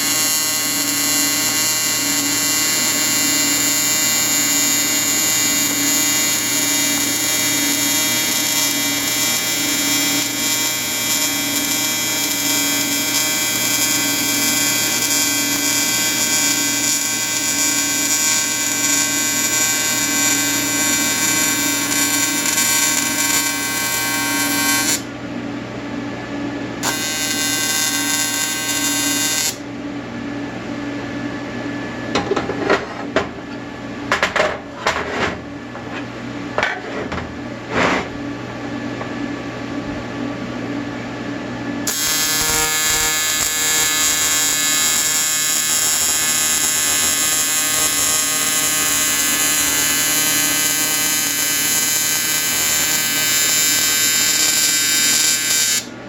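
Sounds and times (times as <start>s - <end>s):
welding arc buzzing: 0.0s - 25.1s, 26.8s - 29.7s, 41.8s - 56.0s.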